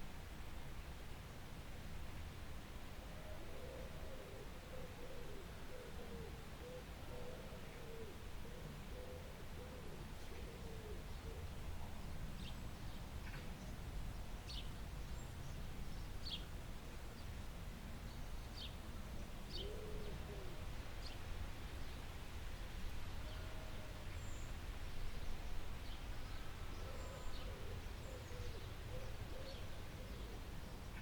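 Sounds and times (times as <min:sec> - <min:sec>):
low cooing bird calls: 0:03.1 - 0:13.8, 0:18.1 - 0:22.1, 0:23.2 - 0:31.0.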